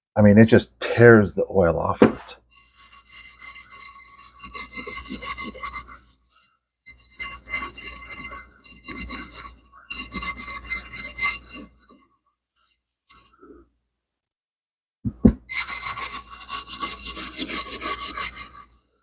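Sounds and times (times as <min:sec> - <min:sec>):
scrubbing metal part by hand: 0:02.5 - 0:06.1, 0:06.9 - 0:12.0, 0:15.1 - 0:18.8.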